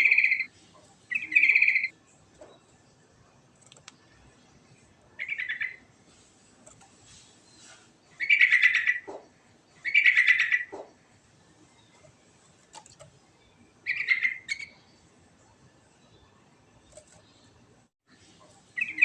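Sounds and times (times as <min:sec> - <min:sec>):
bird warbling song: 0:00.0 - 0:02.7, 0:03.8 - 0:05.9, 0:07.2 - 0:11.0, 0:12.8 - 0:15.1, 0:18.6 - 0:19.0.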